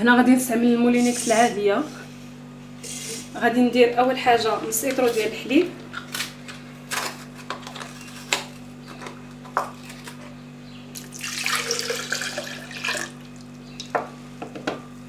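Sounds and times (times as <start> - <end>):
milk pouring into a jug: 11.0 - 13.6.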